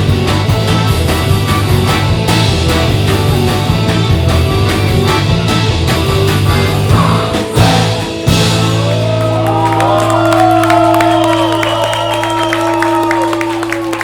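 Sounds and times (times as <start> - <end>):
live rock band playing: 0.0 - 13.8
audience whooping and cheering: 8.6 - 14.0.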